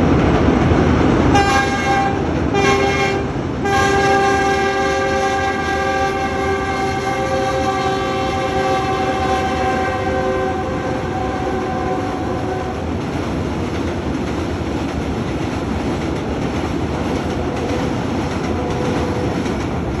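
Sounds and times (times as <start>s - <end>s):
passing train rumbling: 0.0s - 20.0s
train horn chord: 1.3s - 12.8s.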